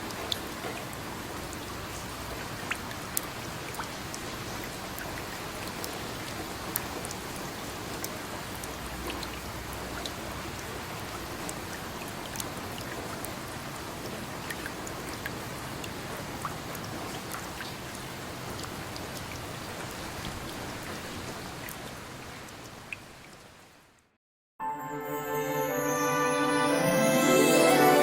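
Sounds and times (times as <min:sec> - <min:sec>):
steady rain: 0:00.0 - 0:24.1
water drips: 0:01.5 - 0:10.2.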